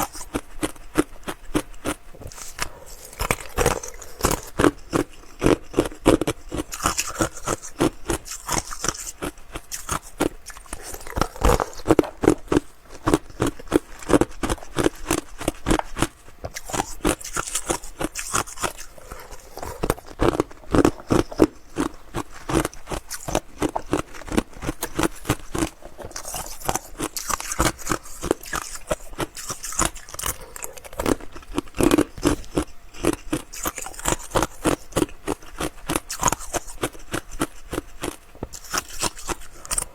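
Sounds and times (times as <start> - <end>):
ice crunched between teeth: 0.0 - 39.9.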